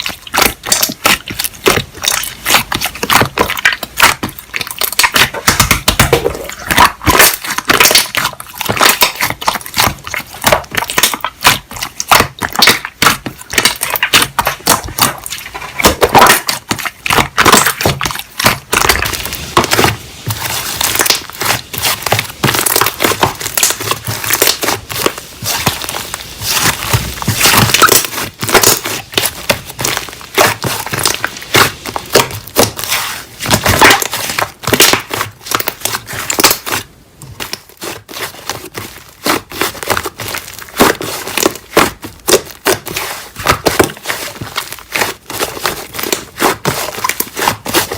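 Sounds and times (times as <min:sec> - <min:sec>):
slime squished by hand: 0:00.0 - 0:47.9.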